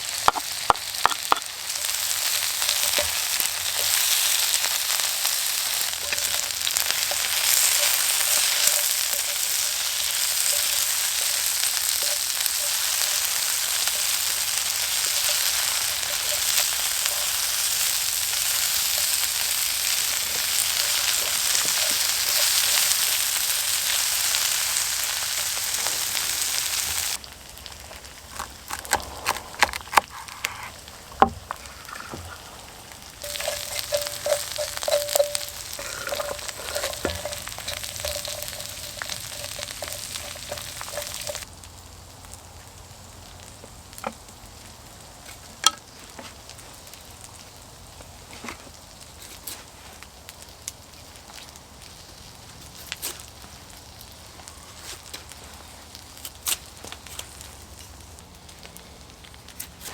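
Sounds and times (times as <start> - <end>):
food sizzling in a pan: 0.0 - 59.9
sharp crackles and clicks: 0.2 - 41.5.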